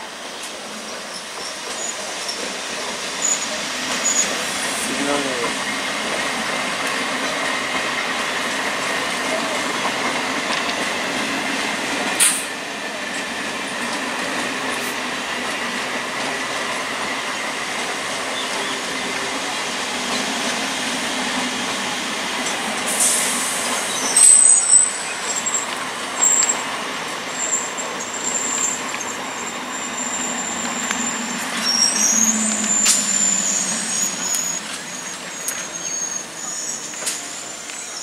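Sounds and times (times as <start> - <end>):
train wheels rushing on rail: 0.0 - 38.0
faint high whine: 29.8 - 35.8.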